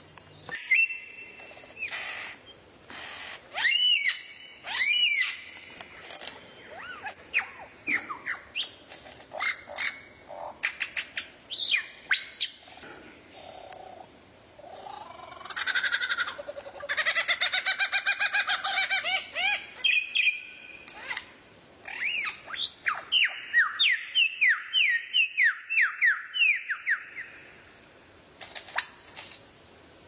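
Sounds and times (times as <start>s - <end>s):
songbird singing: 0.0s - 2.7s, 3.5s - 27.8s, 28.6s - 29.7s.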